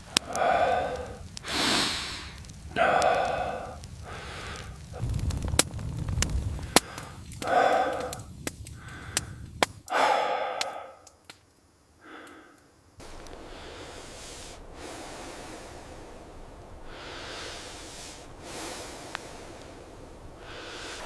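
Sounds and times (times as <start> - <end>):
man breathing out heavily: 0.0 - 5.1, 6.5 - 11.0, 12.0 - 12.7, 13.3 - 21.0
sharp clicks: 0.0 - 10.0.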